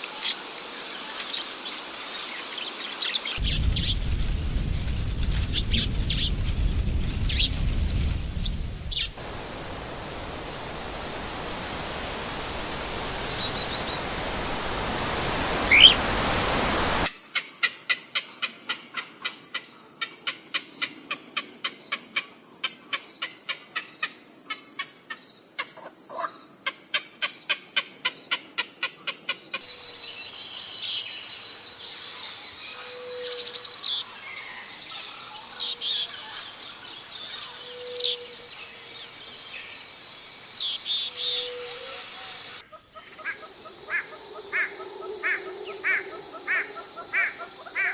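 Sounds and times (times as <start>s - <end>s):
steady hiss: 3.4s - 19.7s
birds chirping and calling: 8.4s - 9.2s.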